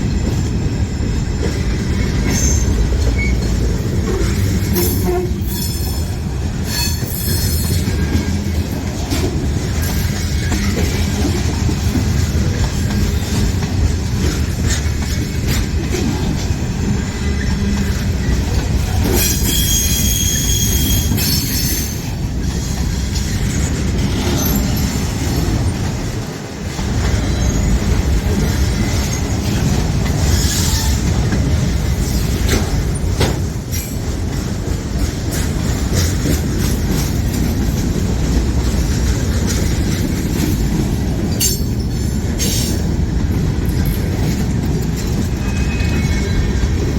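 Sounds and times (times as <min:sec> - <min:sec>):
train wheels rumbling on rails: 0:00.0 - 0:46.9
high wheel squeal: 0:02.0 - 0:03.7, 0:19.1 - 0:22.8, 0:45.4 - 0:46.8.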